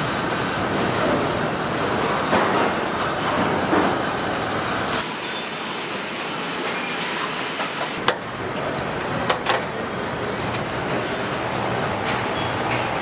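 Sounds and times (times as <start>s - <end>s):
machinery running: 8.0s - 13.0s.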